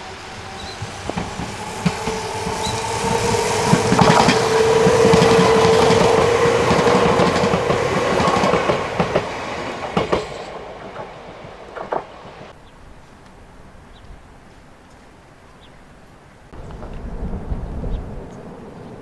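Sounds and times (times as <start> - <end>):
electric train passing: 0.0 - 12.6, 16.6 - 19.0
wheels clacking over rail joints: 0.0 - 12.6.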